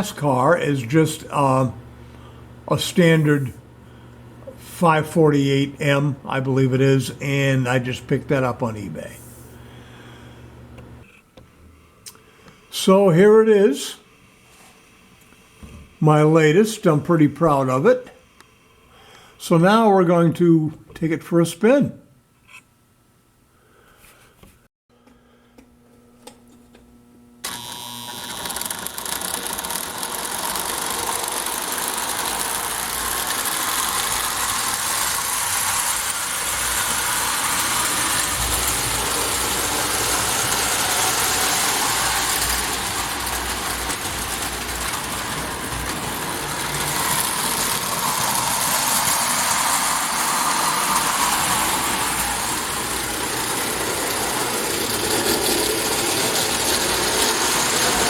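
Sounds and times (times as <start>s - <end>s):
toy train whirring and rattling: 27.4s - 58.0s.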